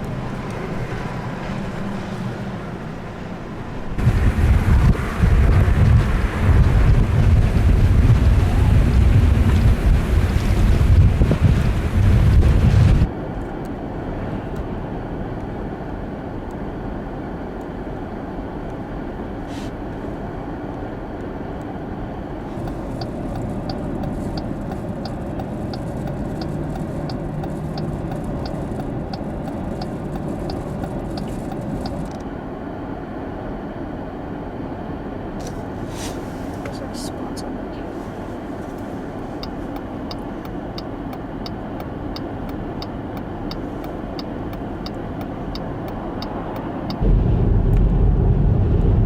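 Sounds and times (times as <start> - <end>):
wind buffeting microphone: 0.0 - 13.1, 42.7 - 49.0
vehicle driving rumble: 0.0 - 49.0
regular light ticking: 22.6 - 32.0, 39.4 - 47.0.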